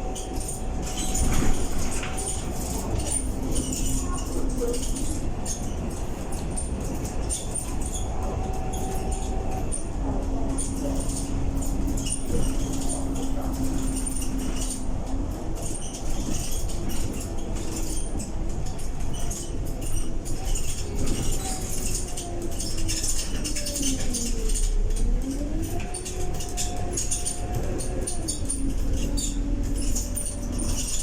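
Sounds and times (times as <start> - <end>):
bus engine rumble: 0.0 - 31.0.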